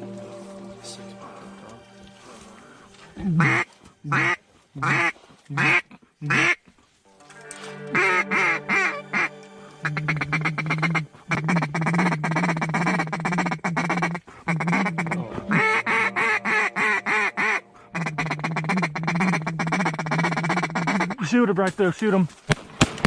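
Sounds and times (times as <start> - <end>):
chattering duck quacks: 3.2 - 6.6, 8.0 - 21.3
duck quacking: 3.2 - 6.6, 7.9 - 21.3.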